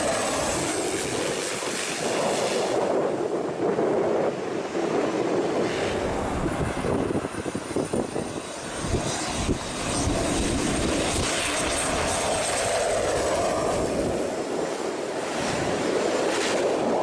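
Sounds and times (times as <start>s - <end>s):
aircraft engine rumble: 0.0s - 17.0s.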